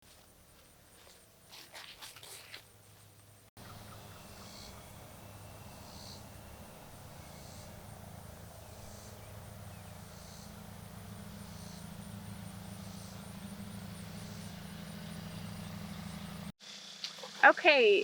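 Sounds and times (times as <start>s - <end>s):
steady low hum: 2.7s - 16.6s
high pulsing insect trill: 3.6s - 16.5s
short high insect buzz: 4.4s - 16.5s.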